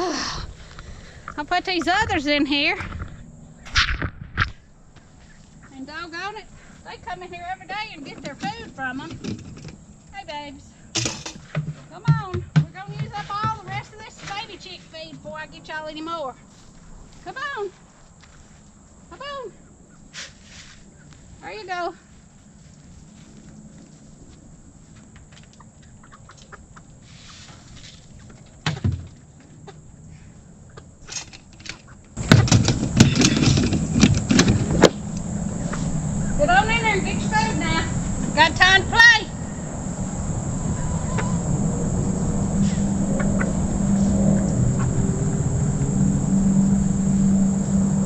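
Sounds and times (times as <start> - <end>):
steady low hum: 0.0 - 48.0
chickens clucking: 25.4 - 32.1, 34.6 - 38.4, 40.7 - 41.5, 42.6 - 45.4
chickens calling softly: 25.5 - 28.8, 40.7 - 41.5
high-pitched drone: 33.2 - 48.0.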